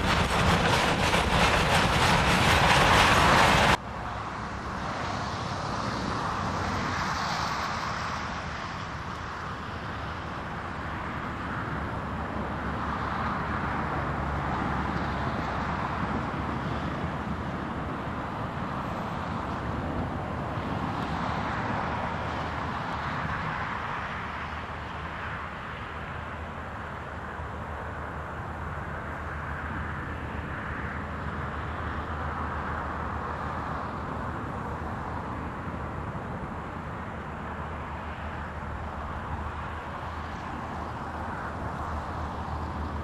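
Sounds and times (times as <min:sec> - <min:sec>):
train wheels rumbling on rails: 0:00.0 - 0:04.1.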